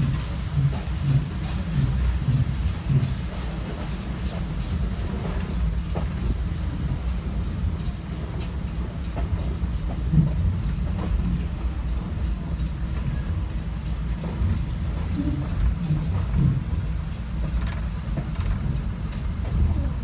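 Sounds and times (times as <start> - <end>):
train coach rumbling on track: 0.0 - 20.0.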